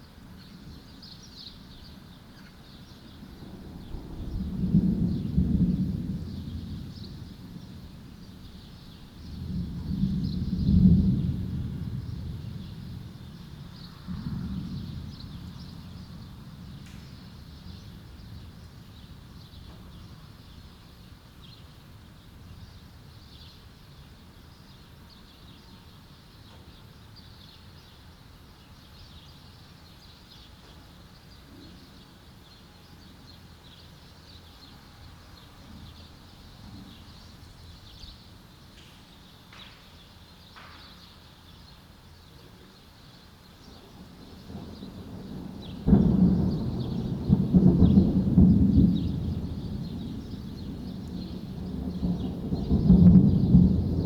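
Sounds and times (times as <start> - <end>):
small birds chirping: 0.0 - 3.4, 12.0 - 54.0
thunder rolling: 3.3 - 18.6, 43.8 - 54.0.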